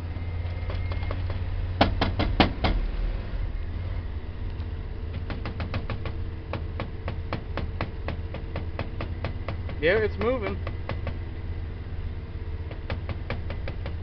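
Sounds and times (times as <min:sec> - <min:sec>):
van engine idling: 0:00.0 - 0:14.0
sharp engine knocks: 0:00.4 - 0:03.0, 0:05.1 - 0:11.5, 0:12.6 - 0:14.0.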